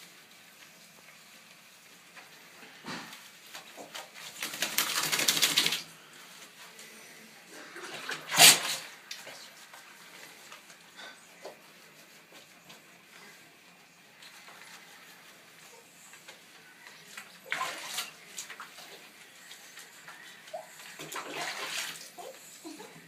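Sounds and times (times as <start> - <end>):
dog sneezing: 8.3 - 8.9.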